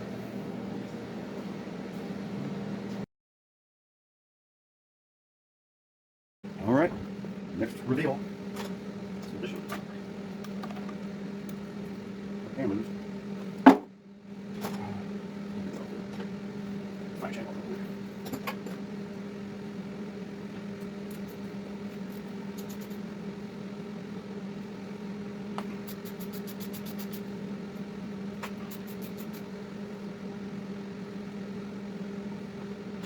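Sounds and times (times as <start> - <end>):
steady hum: 0.0 - 3.0, 6.5 - 33.0.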